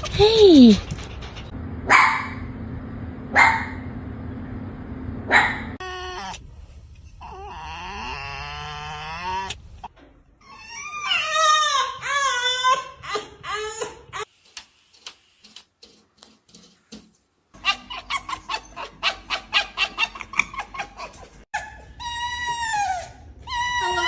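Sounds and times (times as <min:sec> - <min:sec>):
fox whining and yelping: 0:05.8 - 0:14.3, 0:17.6 - 0:20.8, 0:21.6 - 0:24.0.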